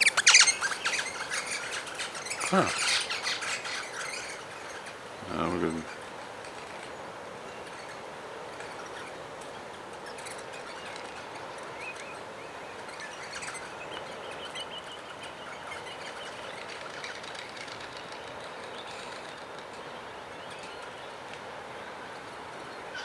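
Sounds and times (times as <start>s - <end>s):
faint bird chirps: 0.0s - 6.0s
outdoor hiss and rumble: 0.0s - 23.0s.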